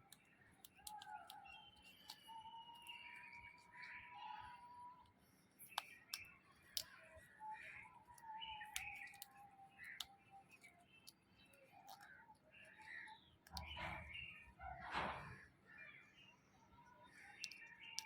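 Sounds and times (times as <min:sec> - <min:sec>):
beak chewing wood: 0:00.0 - 0:14.4.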